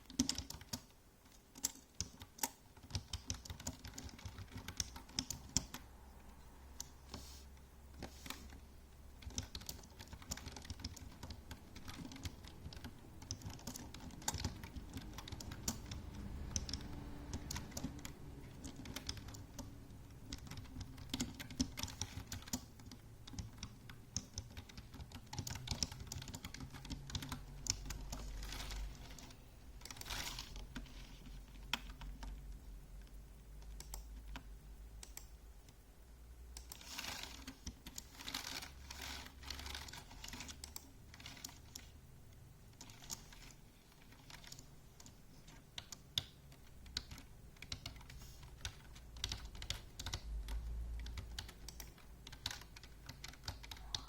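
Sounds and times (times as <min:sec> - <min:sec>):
typing on computer keyboard: 0:00.0 - 0:07.2, 0:08.0 - 0:35.4, 0:36.6 - 0:41.9, 0:42.7 - 0:54.0.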